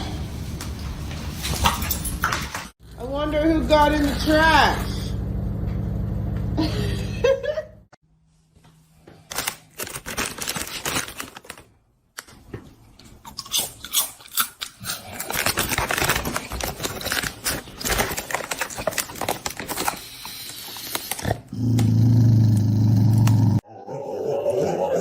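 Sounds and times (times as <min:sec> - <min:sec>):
crunching and tearing of chewing: 0:13.1 - 0:21.4.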